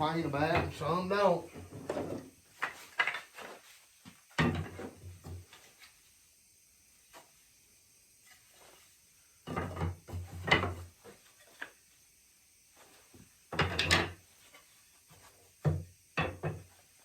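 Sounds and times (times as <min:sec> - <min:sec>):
wooden chair slats clattering: 0:13.5 - 0:14.2.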